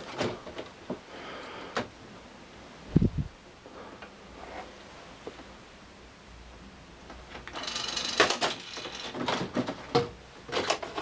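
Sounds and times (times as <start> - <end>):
plastic cassette clattering and scraping: 10.5 - 11.0.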